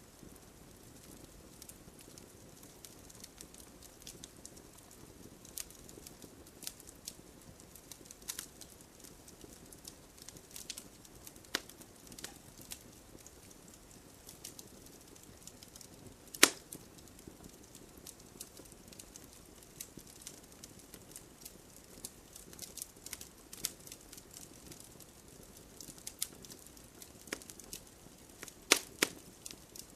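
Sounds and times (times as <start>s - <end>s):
campfire crackling: 0.0s - 29.9s
low fire hiss: 0.0s - 29.9s
loud fire pop: 16.4s - 16.6s.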